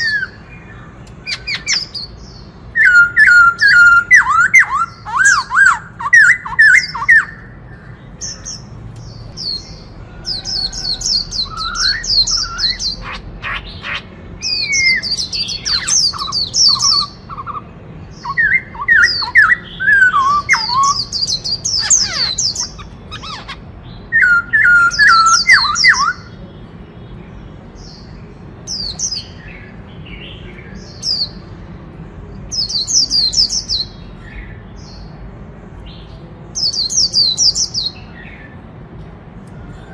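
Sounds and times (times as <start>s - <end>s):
bird singing whistled notes: 0.0s - 13.2s, 14.4s - 17.6s, 18.2s - 26.4s.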